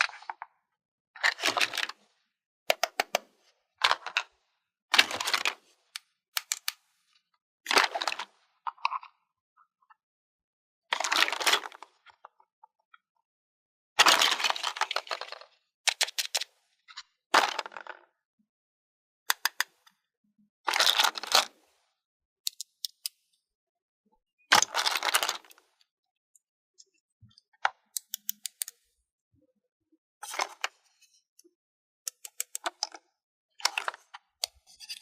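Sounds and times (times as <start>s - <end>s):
plastic pieces clicking: 2.7s - 3.2s, 5.0s - 6.8s, 19.3s - 19.8s, 24.6s - 25.6s, 27.9s - 28.9s, 32.1s - 33.0s.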